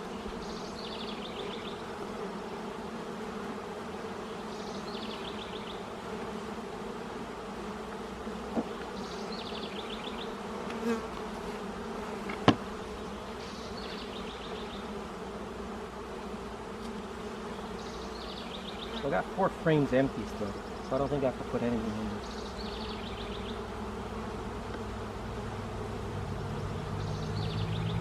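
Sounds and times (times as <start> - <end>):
honeybees buzzing: 0.0 - 28.0.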